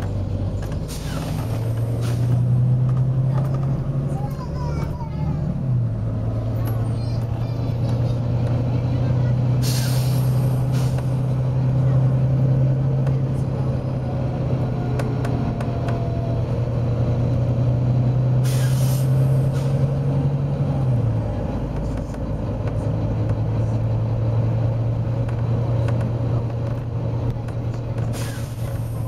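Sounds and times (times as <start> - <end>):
bus diesel engine droning: 0.0 - 29.0
compressed air hiss: 18.4 - 19.7.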